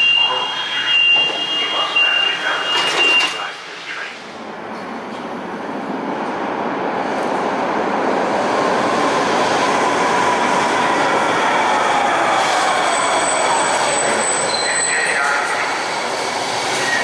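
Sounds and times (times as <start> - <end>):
light rail car rumbling: 0.0 - 17.0
high wheel squeal: 12.8 - 15.8, 16.7 - 17.0.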